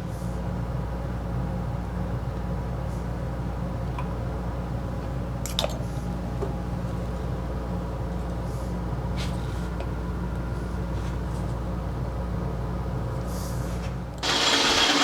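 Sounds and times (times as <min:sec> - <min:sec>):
lathe motor humming: 0:14.2 - 0:15.0
lathe turning plastic hissing: 0:14.2 - 0:15.0.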